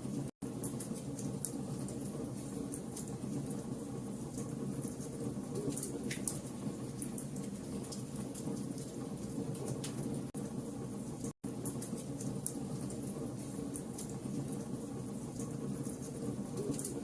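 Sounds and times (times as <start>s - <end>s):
fire crackling and popping: 0.1s - 17.0s.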